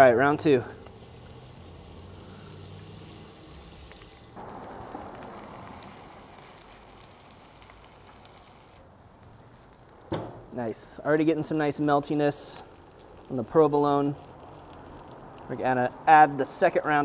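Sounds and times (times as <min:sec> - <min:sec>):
butter and oil sizzling: 0:00.0 - 0:15.8
chicken cutlet frying in oil: 0:04.4 - 0:08.8, 0:12.5 - 0:15.6.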